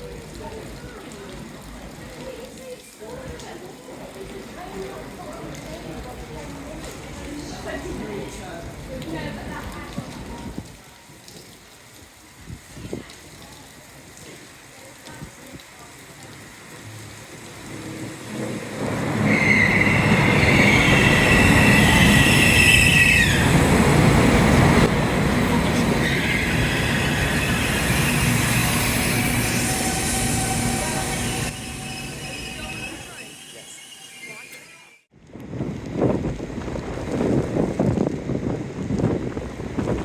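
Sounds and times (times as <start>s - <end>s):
train passing: 16.4s - 35.1s
high-pitched wheel squeal: 19.1s - 23.9s, 25.9s - 35.0s.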